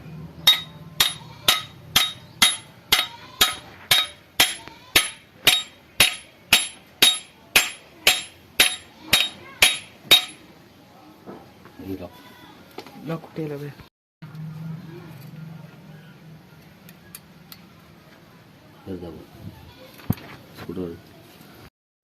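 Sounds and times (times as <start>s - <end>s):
hammer striking metal: 0.4s - 10.5s.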